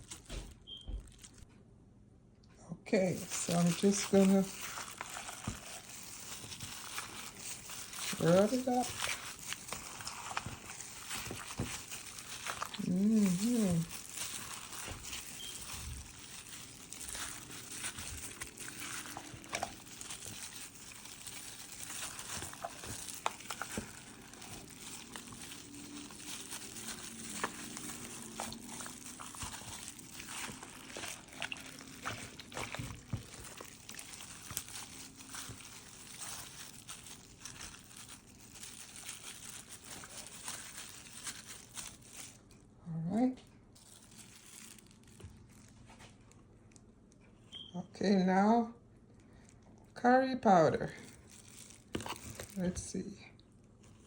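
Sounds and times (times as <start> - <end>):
hands rubbing raw meat: 3.1 - 42.4, 51.1 - 52.7.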